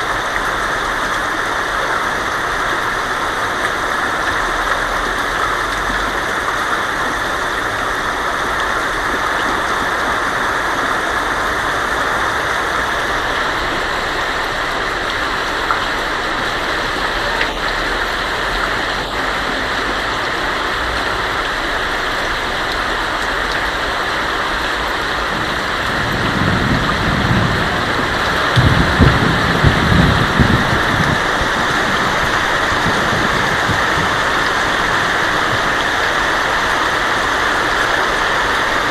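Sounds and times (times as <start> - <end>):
heavy rain on a tin roof: 0.0 - 38.9
thunder rumble: 24.9 - 37.0.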